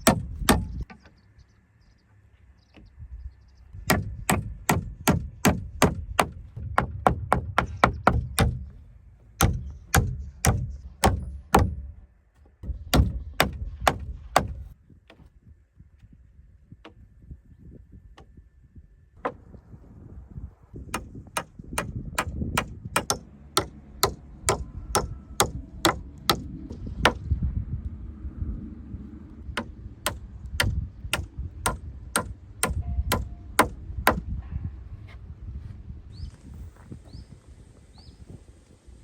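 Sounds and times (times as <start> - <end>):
hammer striking timber: 0.0 - 0.9, 3.8 - 8.8, 9.4 - 15.2, 20.9 - 27.2, 29.6 - 34.3.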